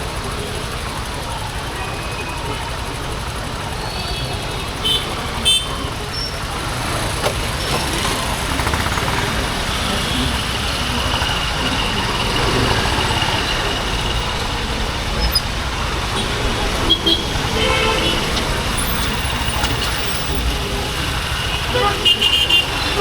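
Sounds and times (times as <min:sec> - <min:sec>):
motorcycle engine running: 0:00.0 - 0:23.0
road and traffic noise: 0:00.0 - 0:23.0
horn toots: 0:16.1 - 0:20.4, 0:21.2 - 0:23.0.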